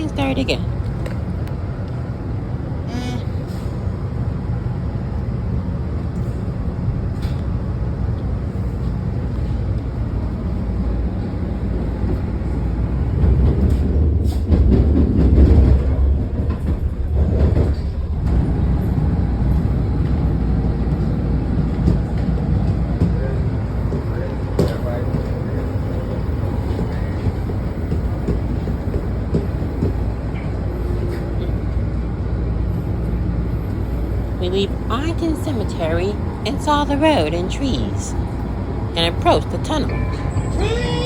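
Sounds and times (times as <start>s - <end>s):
train rumbling on rails: 0.0s - 41.0s
rail clicks: 7.1s - 32.3s.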